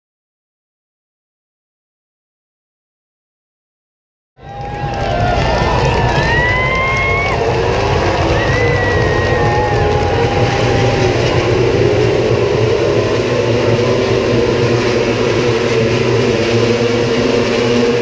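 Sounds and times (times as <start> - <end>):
racing motorcycle engines droning: 4.4 - 18.0.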